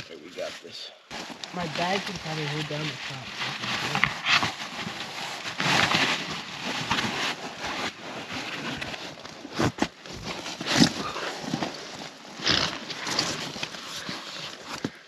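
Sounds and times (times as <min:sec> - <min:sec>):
rustling of camping gear: 0:01.1 - 0:15.0.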